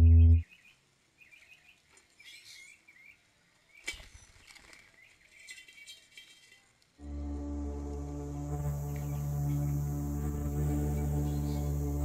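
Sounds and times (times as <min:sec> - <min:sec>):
loud musical note: 0:00.0 - 0:00.4, 0:07.0 - 0:12.0
small birds chirping: 0:00.0 - 0:06.8, 0:08.6 - 0:12.0.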